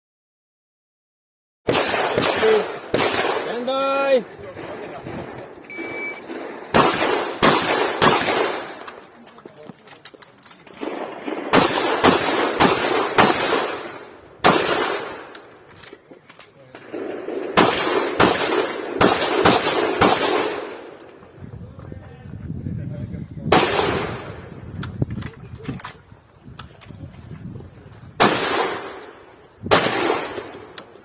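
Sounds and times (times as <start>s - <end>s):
shotgun shots: 1.7s - 9.2s, 10.6s - 15.6s, 16.7s - 21.0s, 23.5s - 24.6s, 28.2s - 31.0s.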